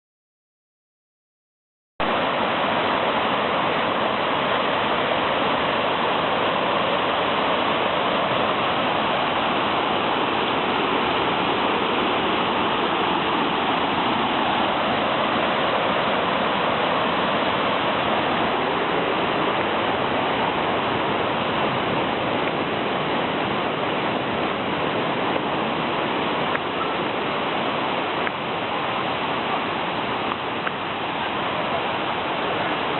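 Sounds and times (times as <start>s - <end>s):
waterfall rushing: 2.0s - 32.9s.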